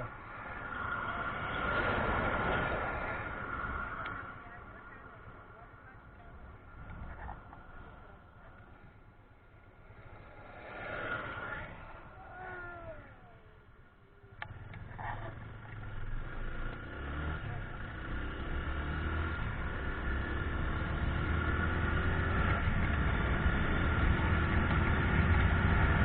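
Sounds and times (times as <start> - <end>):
motorcycle engine running: 13.3 - 26.0.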